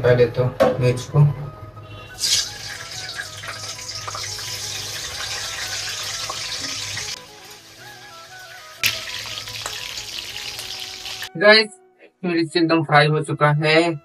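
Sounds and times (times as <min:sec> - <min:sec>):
chilli sizzling in hot oil: 0:02.1 - 0:11.3.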